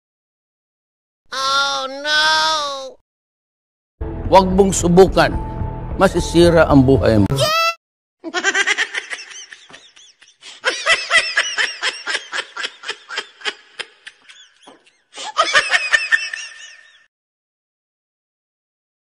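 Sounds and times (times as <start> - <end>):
person laughing rhythmically: 8.2 - 17.1.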